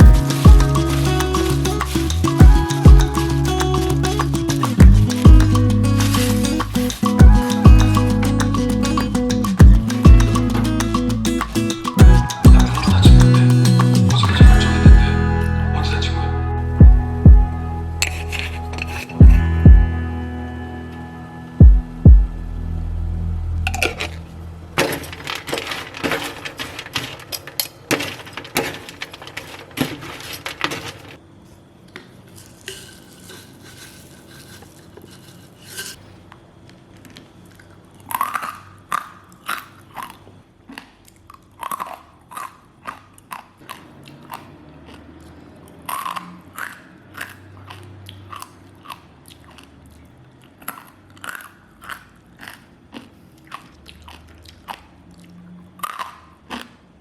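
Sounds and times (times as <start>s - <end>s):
crunchy snacks being chewed: 36.6s - 57.0s.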